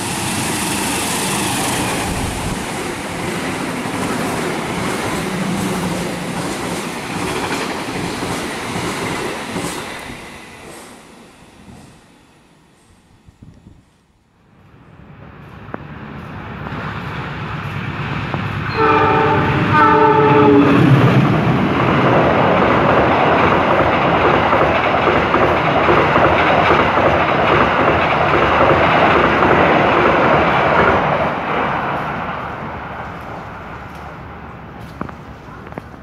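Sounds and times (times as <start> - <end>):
train coaches clattering past: 0.0 - 13.2, 14.7 - 36.0
locomotive horn blasts: 18.7 - 20.8.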